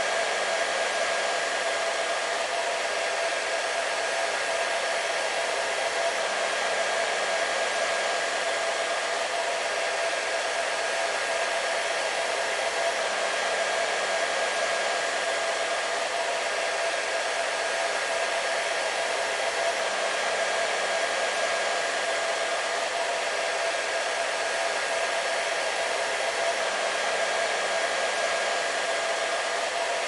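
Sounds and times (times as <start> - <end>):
hair dryer running: 0.0 - 30.0.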